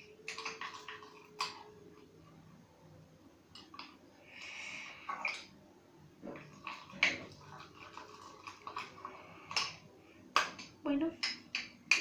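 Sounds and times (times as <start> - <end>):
wet squishing of slime: 0.0 - 2.6, 6.2 - 10.7.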